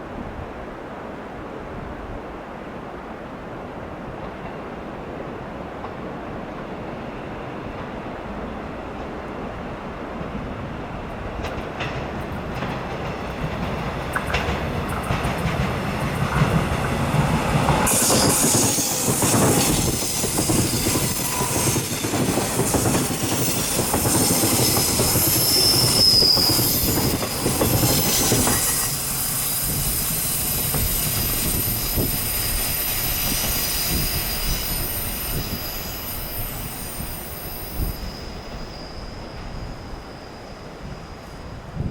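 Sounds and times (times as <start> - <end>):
train cars rumbling on rails: 4.1 - 41.9
train wheels squealing: 14.2 - 41.9.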